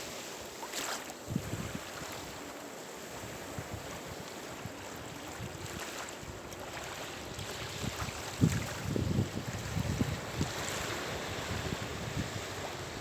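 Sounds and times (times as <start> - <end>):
wind buffeting microphone: 1.3 - 2.3, 7.2 - 13.0.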